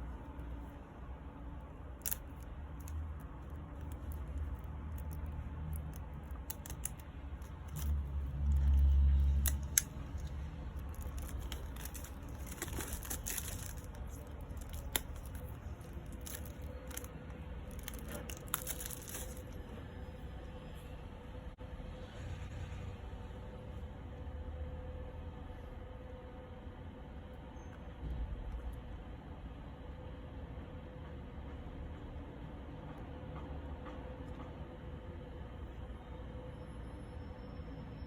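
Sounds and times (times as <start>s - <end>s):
plastic wrapping tearing and crinkling: 2.0s - 19.7s.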